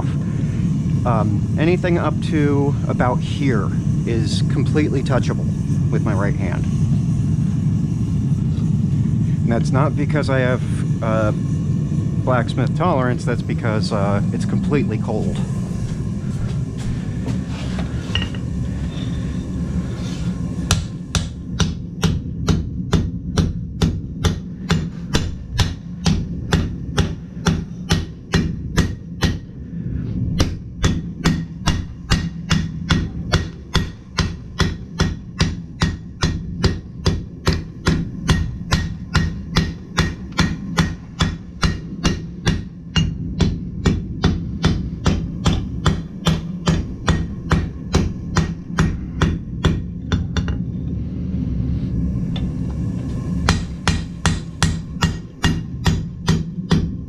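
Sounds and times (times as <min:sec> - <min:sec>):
low hum: 0:00.0 - 0:57.0
hammer striking steel on anvil: 0:18.1 - 0:19.2, 0:20.7 - 0:29.5, 0:30.4 - 0:50.6, 0:53.5 - 0:57.0.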